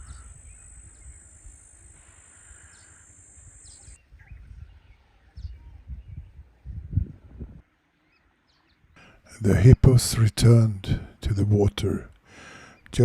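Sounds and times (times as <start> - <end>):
steady high whine: 0.0 - 4.0
bird chirps: 0.0 - 6.2
low rumbling wind gusts: 0.0 - 7.7.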